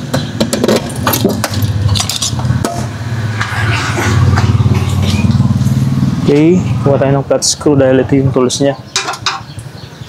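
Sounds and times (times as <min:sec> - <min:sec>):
hand tools clinking: 0:09.0 - 0:09.5.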